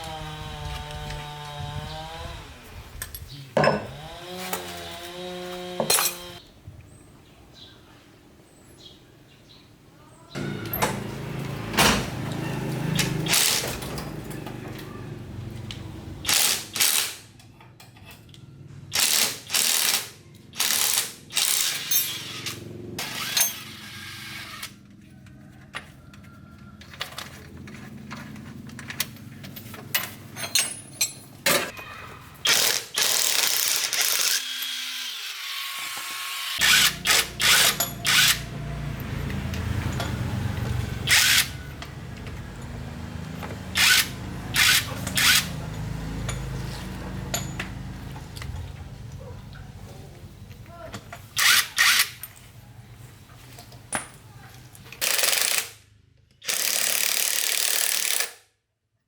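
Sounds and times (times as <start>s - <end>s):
power tool bursts: 19.0s - 24.8s, 32.4s - 38.5s, 41.0s - 41.6s, 43.8s - 45.5s, 51.4s - 52.2s.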